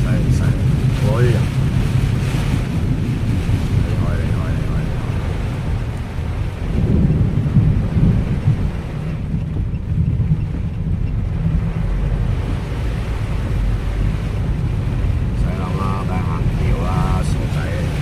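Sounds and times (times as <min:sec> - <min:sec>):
heavy rain: 0:00.0 - 0:18.0
heavy wind: 0:00.0 - 0:18.0.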